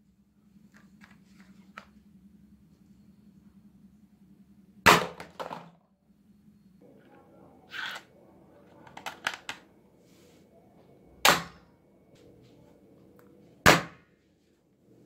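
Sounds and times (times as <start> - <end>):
toy dart gun shots: 4.9 - 5.6, 11.2 - 11.6, 13.7 - 14.0.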